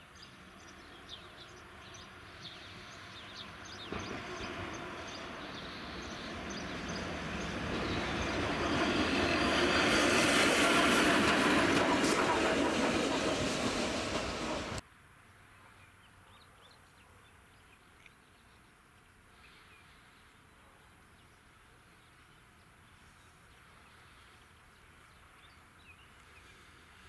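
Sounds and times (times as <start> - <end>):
train rushing by: 1.2 - 14.8.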